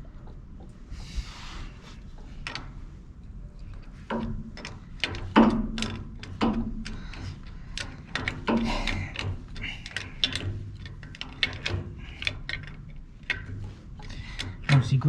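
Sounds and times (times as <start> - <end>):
spanner clicking on metal valve: 4.1 - 14.8.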